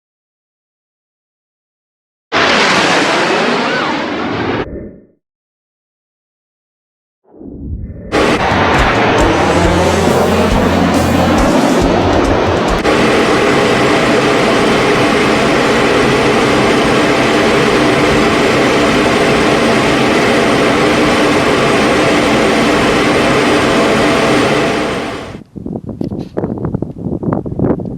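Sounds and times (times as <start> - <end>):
jet roar overhead: 2.3 - 5.1, 7.4 - 25.4.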